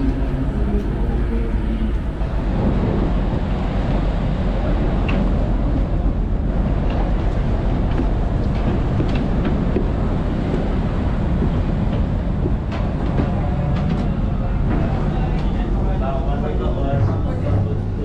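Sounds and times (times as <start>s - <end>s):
ship engines rumbling: 0.0s - 18.0s.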